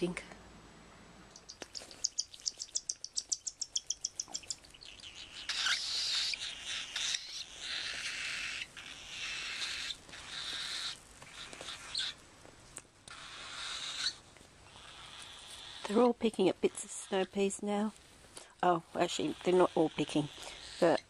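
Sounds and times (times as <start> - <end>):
cockatiels chirping: 1.4 - 12.2, 13.1 - 17.5, 19.0 - 21.0
cockatiels harsh raspy calls: 1.8 - 12.2, 13.1 - 16.1, 16.7 - 17.5, 19.0 - 21.0.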